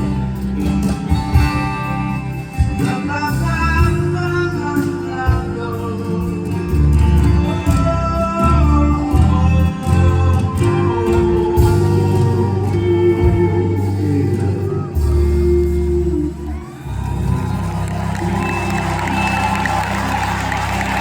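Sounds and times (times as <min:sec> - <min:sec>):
live band playing soft-rock ballad: 0:00.0 - 0:21.0.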